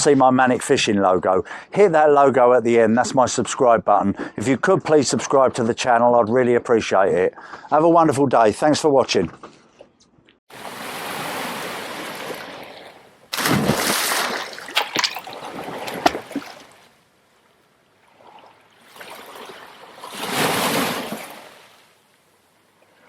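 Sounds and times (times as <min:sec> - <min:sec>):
sea water splashing and surging: 0:10.5 - 0:23.0.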